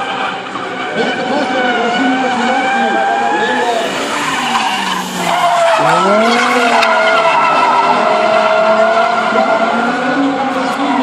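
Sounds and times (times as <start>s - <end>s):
car engine revving: 0.7s - 10.7s
tyre screech: 1.8s - 8.5s.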